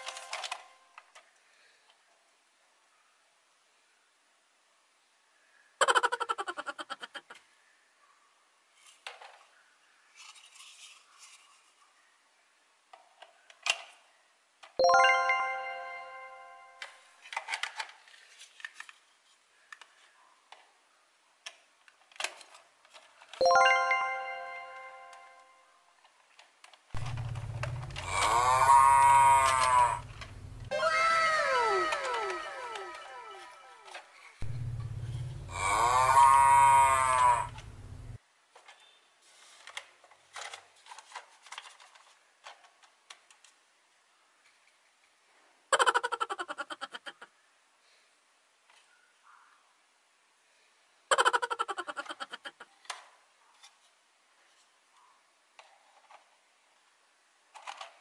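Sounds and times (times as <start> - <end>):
plastic toy pieces clicking: 0.0 - 1.2, 17.2 - 19.0, 21.4 - 23.4, 26.0 - 33.1, 57.5 - 58.0
cow mooing: 27.0 - 33.7, 34.4 - 38.2
low hum: 27.0 - 38.2.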